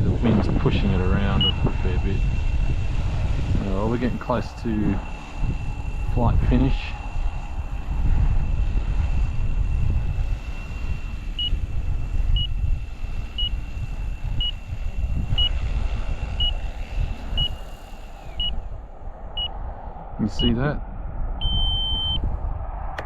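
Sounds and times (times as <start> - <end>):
model helicopter high whine: 0.0 - 20.8, 21.4 - 23.0
wind rumbling on microphone: 0.0 - 23.0
short beeps: 1.4 - 1.6, 21.4 - 22.2.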